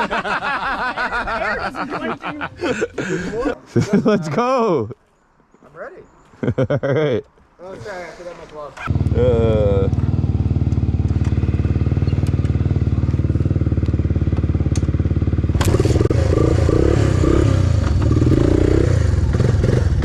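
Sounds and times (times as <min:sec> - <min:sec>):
single-cylinder engine idling and revving: 0:08.9 - 0:20.0.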